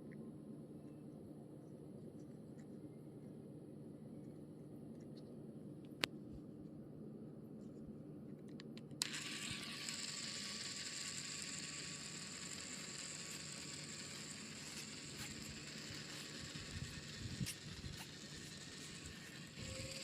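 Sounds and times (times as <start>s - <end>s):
toy motor whirring: 9.0s - 20.0s.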